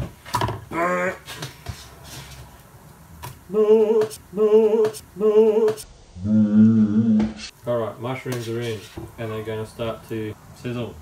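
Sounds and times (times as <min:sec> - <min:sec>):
man humming: 0:03.5 - 0:07.4.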